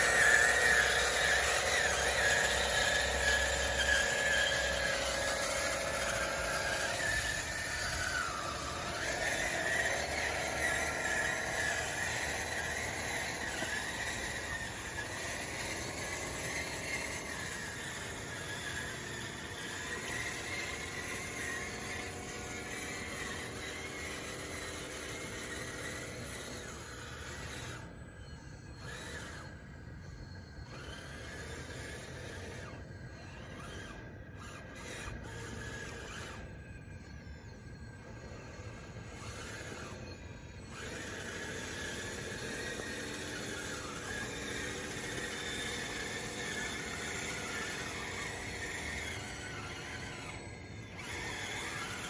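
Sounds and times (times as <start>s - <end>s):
toy bulldozer motors whining: 0.0s - 52.0s.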